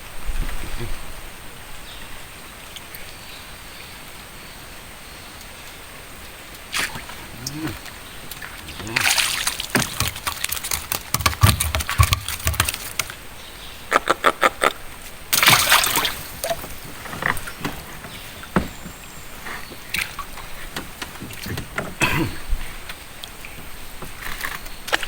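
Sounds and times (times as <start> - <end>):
water sloshing around a boat: 5.5 - 13.4, 15.1 - 25.0
knocks and clicks: 9.7 - 13.1.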